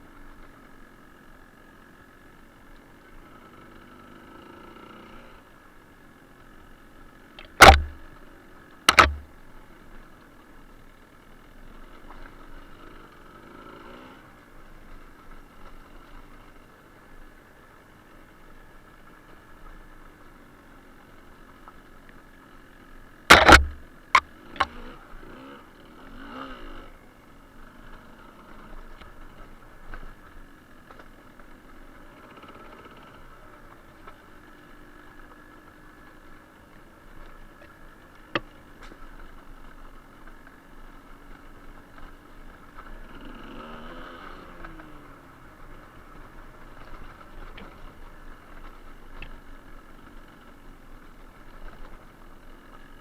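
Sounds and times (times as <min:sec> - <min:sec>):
two-stroke engine running: 0:00.0 - 0:53.0
loud thump: 0:07.4 - 0:08.0, 0:08.9 - 0:09.3, 0:23.3 - 0:23.8
sharp loud knocks: 0:07.4 - 0:08.0, 0:08.9 - 0:09.3, 0:23.3 - 0:23.8.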